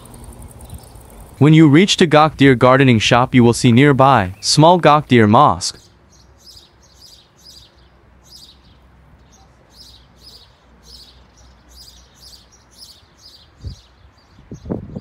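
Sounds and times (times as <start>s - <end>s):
small songbird chirping: 0.0s - 1.4s, 5.7s - 15.0s.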